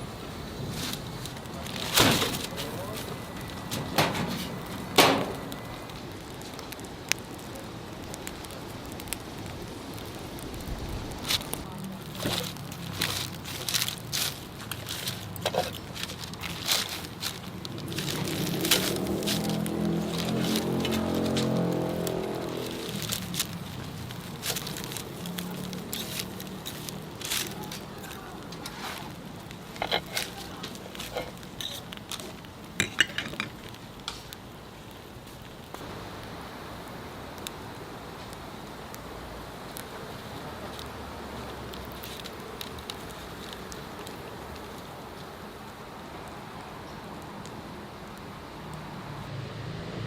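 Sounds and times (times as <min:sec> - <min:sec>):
steady hiss: 0:00.0 - 0:49.2
wood fire crackling: 0:00.0 - 0:49.8
sharp pop of fire: 0:03.9 - 0:05.7.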